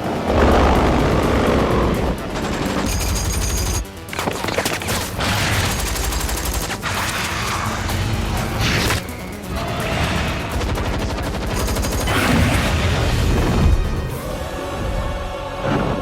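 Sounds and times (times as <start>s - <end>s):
film score music: 0.0s - 16.0s
automatic gunfire bursts: 2.3s - 7.6s.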